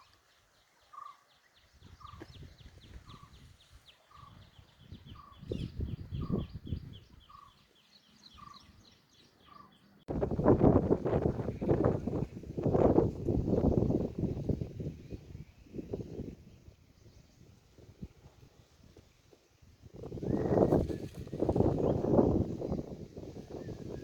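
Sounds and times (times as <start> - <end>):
rapid high bird chirps: 0.9 - 10.0.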